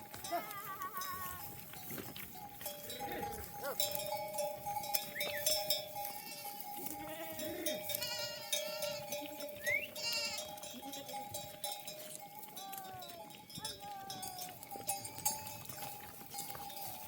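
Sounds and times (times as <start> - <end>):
animal bells clinking: 0.0 - 17.0
sheep bleating: 2.8 - 3.9, 6.0 - 11.2.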